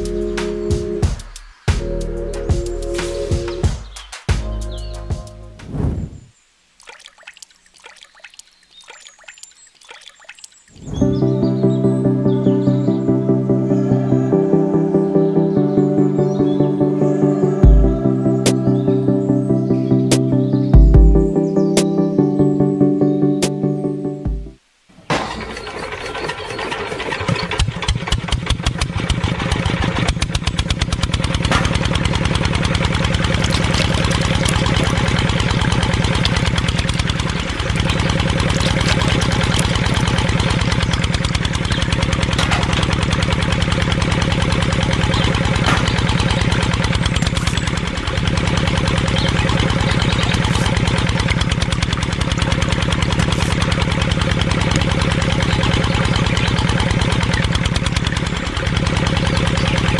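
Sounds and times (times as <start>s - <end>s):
engine starting and chugging: 25.1s - 59.9s.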